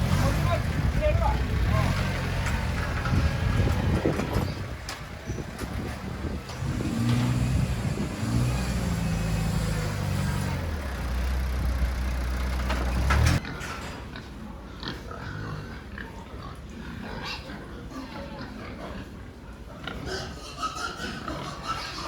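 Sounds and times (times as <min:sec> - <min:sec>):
truck motor humming: 0:00.0 - 0:13.4.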